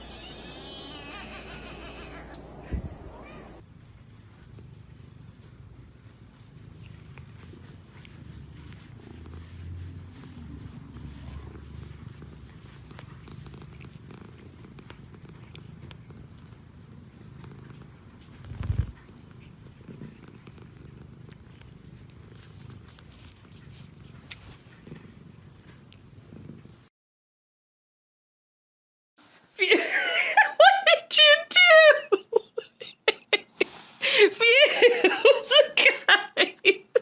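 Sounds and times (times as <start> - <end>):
cat purring: 3.2 - 26.9.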